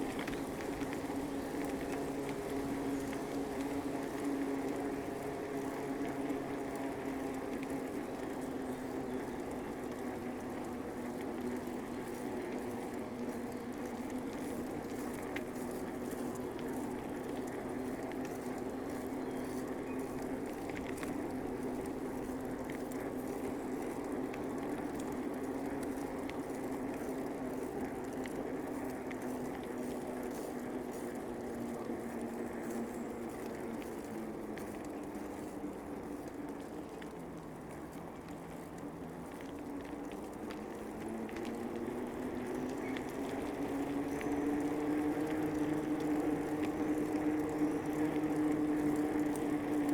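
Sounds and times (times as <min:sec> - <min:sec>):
bicycle tyre hum: 0:00.0 - 0:49.9
crackly rolling noise: 0:00.0 - 0:49.9.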